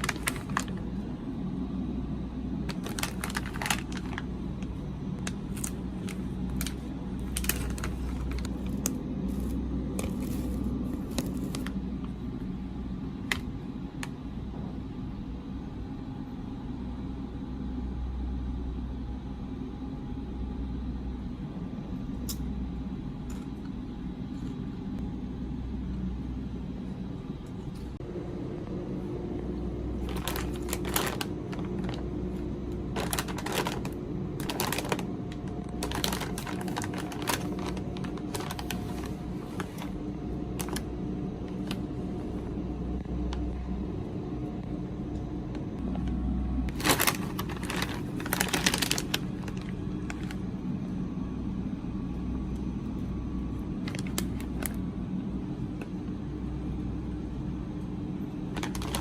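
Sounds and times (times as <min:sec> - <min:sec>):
packaging crinkling and clicking: 0:00.0 - 0:00.8, 0:02.7 - 0:04.3, 0:05.2 - 0:11.8, 0:30.1 - 0:32.0, 0:33.0 - 0:40.0, 0:40.6 - 0:40.9, 0:46.7 - 0:50.4, 0:53.8 - 0:54.8, 0:58.6 - 0:59.0
steady low hum: 0:00.0 - 0:59.0.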